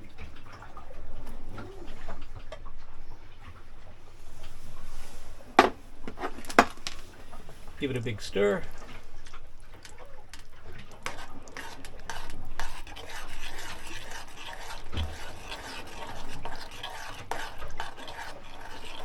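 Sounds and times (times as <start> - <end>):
spoon scraping and clinking pot: 4.9 - 19.0.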